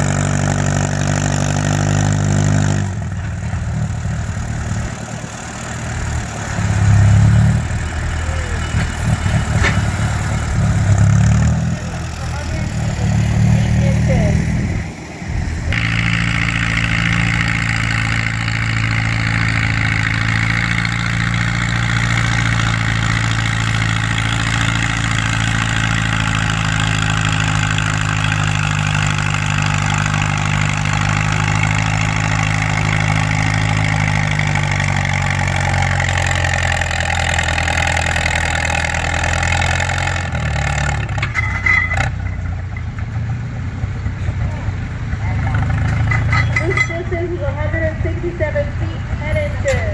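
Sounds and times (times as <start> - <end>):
tractor engine under load: 0.0 - 49.9.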